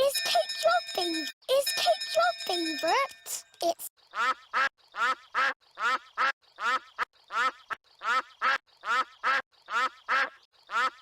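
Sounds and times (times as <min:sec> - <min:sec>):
cartoon duck quacking: 0:04.1 - 0:11.0.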